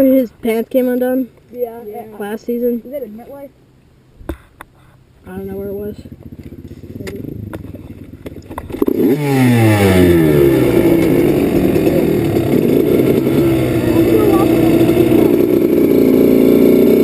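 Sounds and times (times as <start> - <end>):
dirt bike engine revving: 5.7 - 17.0.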